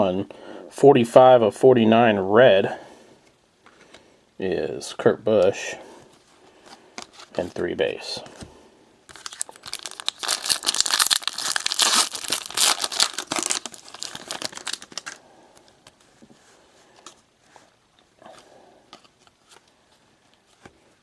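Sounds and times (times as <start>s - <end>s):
foil wrapper crinkling and tearing: 9.1s - 15.2s.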